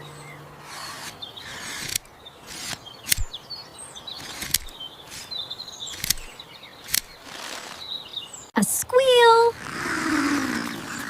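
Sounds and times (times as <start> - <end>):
small birds twittering: 0.0 - 11.0
sharp clicks: 0.7 - 3.4, 4.2 - 7.6.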